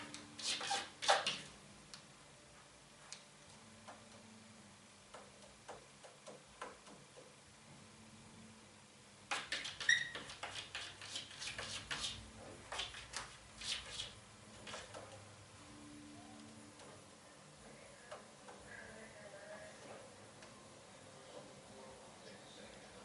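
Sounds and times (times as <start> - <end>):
scratchy clicks on window: 9.3 - 15.2
brief squeak: 9.8 - 10.4.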